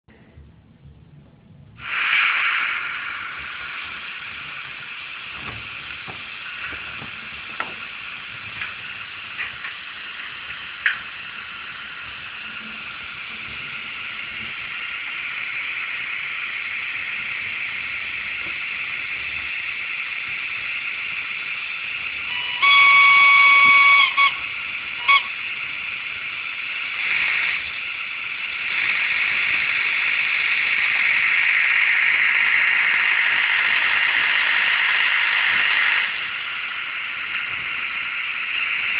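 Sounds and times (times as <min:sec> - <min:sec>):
brief hiss: 0:01.8 - 0:30.9
locomotive horn blast: 0:22.3 - 0:25.5.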